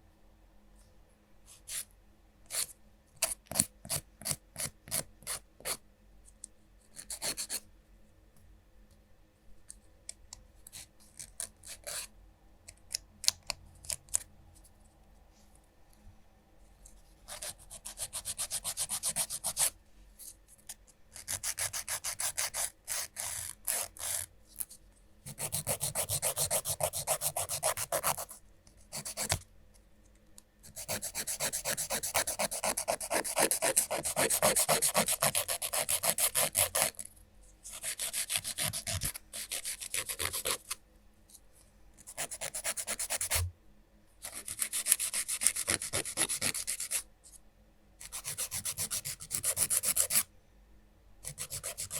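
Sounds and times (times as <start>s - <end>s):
nail file rasping on fingernails: 17.3s - 19.7s, 21.1s - 24.3s, 25.3s - 28.4s, 30.7s - 37.1s, 37.7s - 40.8s, 42.0s - 43.4s, 44.2s - 47.0s, 48.0s - 50.2s, 51.2s - 51.9s.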